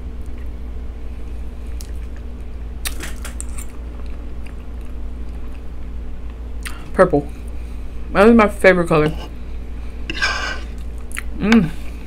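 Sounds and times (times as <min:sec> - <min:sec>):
low steady hum: 0:00.0 - 0:12.0
wet chewing clicks and smacks: 0:01.8 - 0:05.7, 0:10.8 - 0:11.3.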